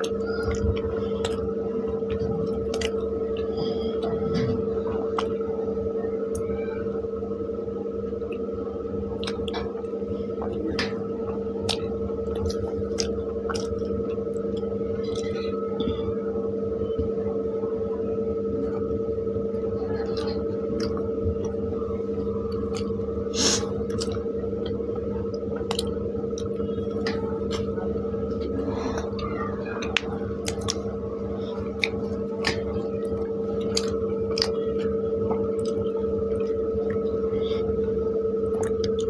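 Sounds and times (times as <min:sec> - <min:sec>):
steady hum: 0:00.0 - 0:39.0
chewing and mouth smacks: 0:02.1 - 0:04.5, 0:09.2 - 0:09.8, 0:11.6 - 0:15.9, 0:23.8 - 0:27.8, 0:29.2 - 0:30.9, 0:31.6 - 0:37.2, 0:38.4 - 0:39.0.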